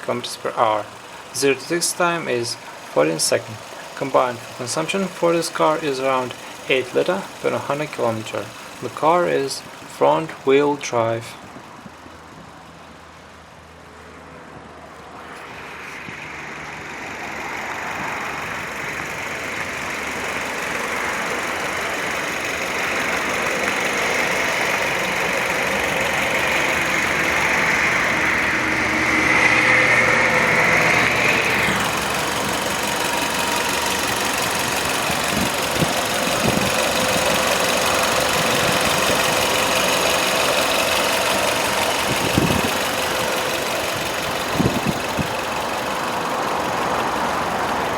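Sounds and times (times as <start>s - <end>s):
car engine running: 0.0s - 47.9s.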